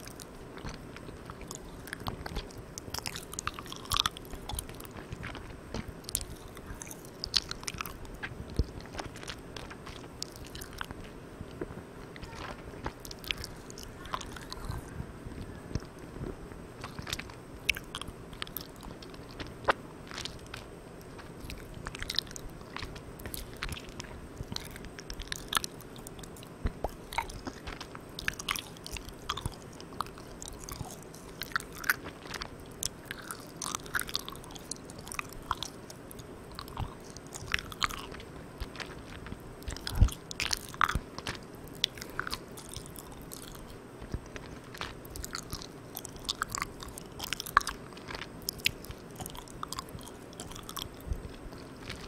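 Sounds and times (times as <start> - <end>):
wet chewing mouth clicks: 0.0 - 16.2, 16.8 - 52.0
steady recorder hiss: 0.0 - 52.0.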